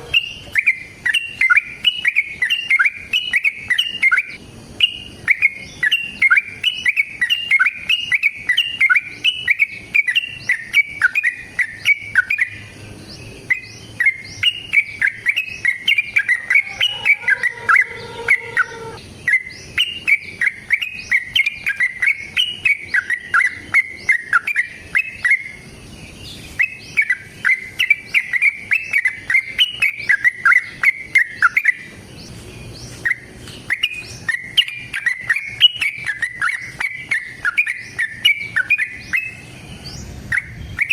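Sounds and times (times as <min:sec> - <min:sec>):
bird singing chattering song: 0:00.0 - 0:40.9.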